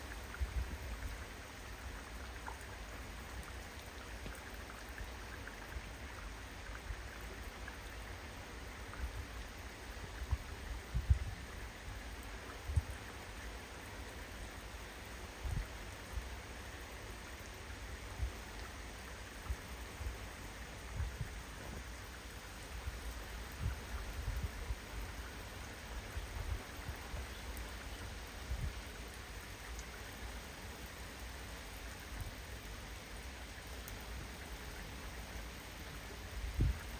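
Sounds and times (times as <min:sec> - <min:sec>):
steady rain: 0:00.0 - 0:36.9
wind buffeting microphone: 0:10.2 - 0:11.7, 0:20.8 - 0:21.9, 0:23.5 - 0:25.0, 0:36.4 - 0:36.9.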